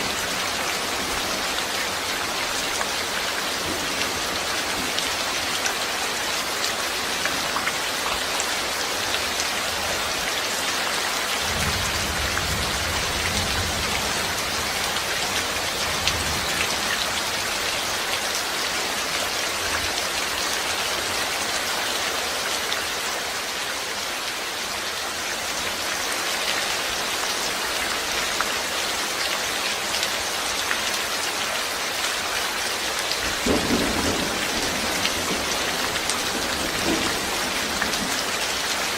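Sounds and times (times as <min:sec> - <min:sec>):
steady rain patter: 0:00.0 - 0:38.9.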